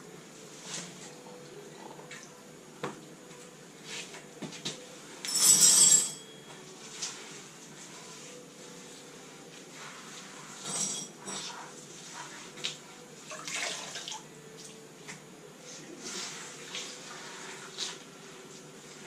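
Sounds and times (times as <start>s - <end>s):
tools and parts clinking: 5.3s - 6.2s.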